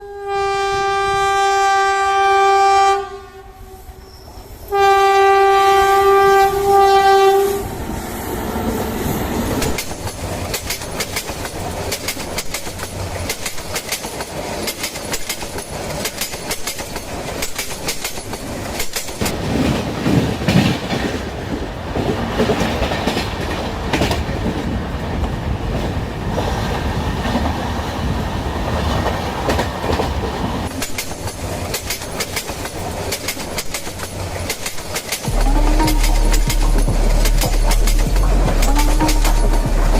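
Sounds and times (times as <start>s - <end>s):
train horn blasts: 0.0s - 7.8s, 35.3s - 39.9s
train rumble: 0.0s - 39.9s
wheels clacking over rail joints: 5.6s - 39.9s.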